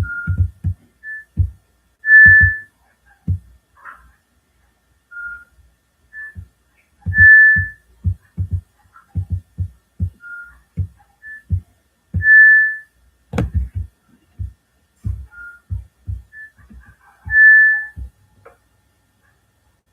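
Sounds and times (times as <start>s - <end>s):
low thumping beat: 0.0s - 2.7s, 7.1s - 8.6s, 9.2s - 10.2s, 10.8s - 12.6s, 13.3s - 18.1s
whistled tune: 2.1s - 2.7s, 7.2s - 7.8s, 12.2s - 12.8s, 15.3s - 15.7s, 17.3s - 18.0s.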